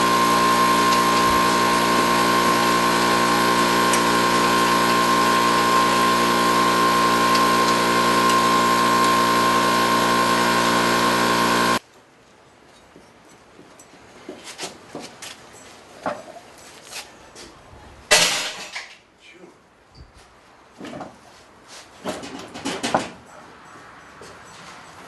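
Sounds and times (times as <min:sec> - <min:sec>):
machine humming with high whine: 0:00.0 - 0:11.8.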